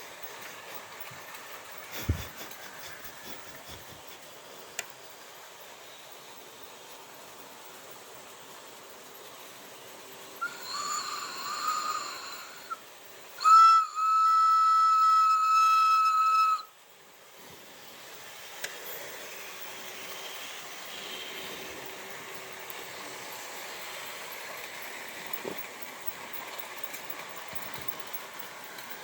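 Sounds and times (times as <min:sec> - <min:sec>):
model train steam whistle: 0:10.4 - 0:16.8, 0:20.9 - 0:21.9.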